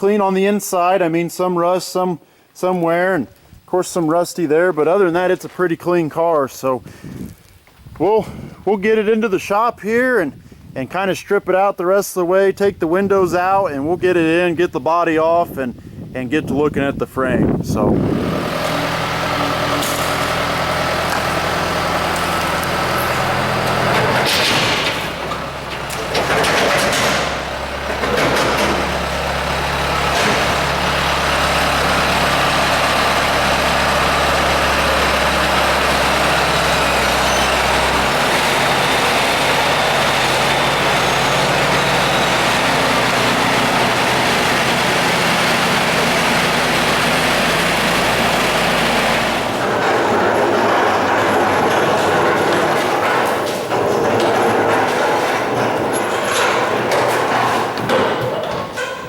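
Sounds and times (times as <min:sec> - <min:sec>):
vehicle engine running: 0:18.0 - 0:57.8.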